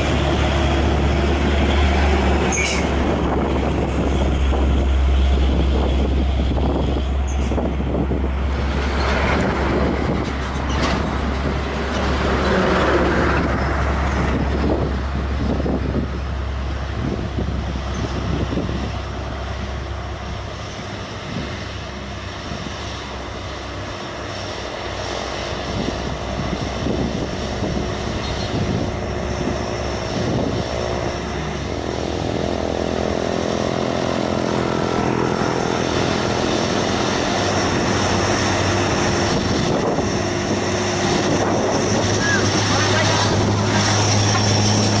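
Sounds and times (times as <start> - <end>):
truck engine rumbling under load: 0.0 - 45.0.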